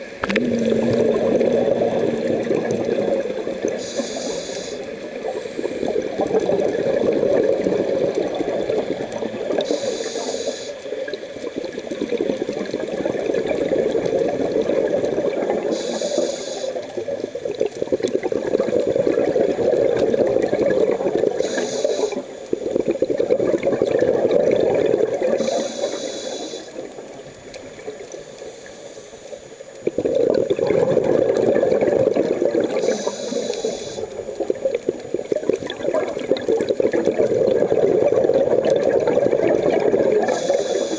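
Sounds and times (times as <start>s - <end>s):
exhaled air bubbling: 0.0s - 28.4s, 29.3s - 40.9s
regulator inhalation hiss: 3.7s - 5.9s, 9.6s - 10.9s, 15.7s - 16.9s, 21.4s - 22.4s, 25.4s - 26.9s, 28.4s - 29.4s, 32.7s - 34.2s, 40.2s - 40.9s.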